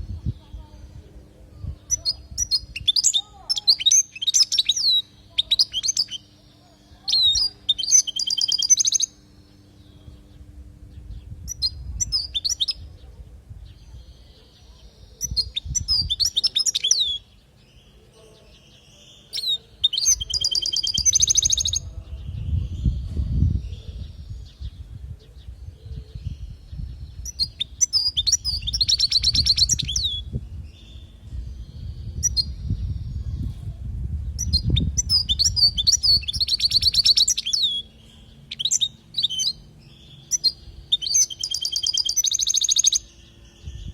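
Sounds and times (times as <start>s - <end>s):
finch twittering song: 0.0s - 43.9s
low rumble: 21.8s - 36.2s.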